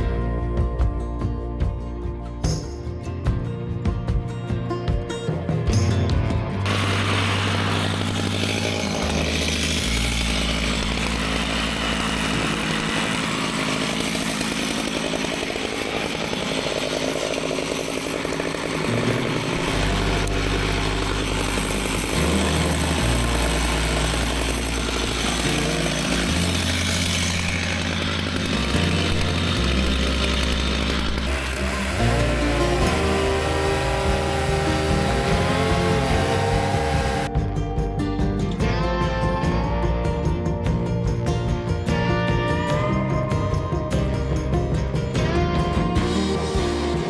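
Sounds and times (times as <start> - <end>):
music bass line: 0.0 - 13.2, 19.1 - 47.0
chainsaw cutting log: 6.6 - 37.3.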